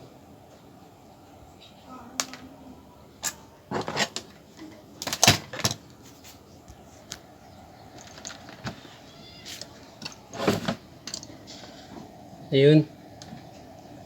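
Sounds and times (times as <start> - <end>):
tools clicking and knocking on workbench: 3.2 - 5.9, 9.5 - 11.4.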